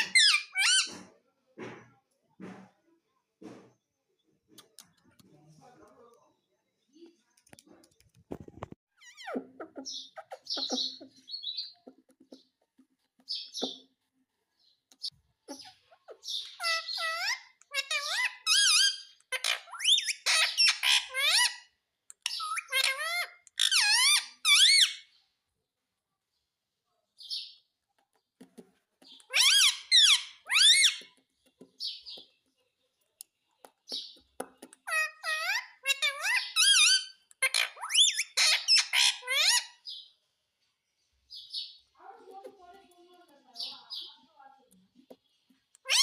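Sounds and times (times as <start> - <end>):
parakeet chattering and squawking: 0.0 - 1.2, 8.5 - 14.1, 14.9 - 25.2, 29.0 - 32.5, 33.6 - 40.1, 45.6 - 46.0.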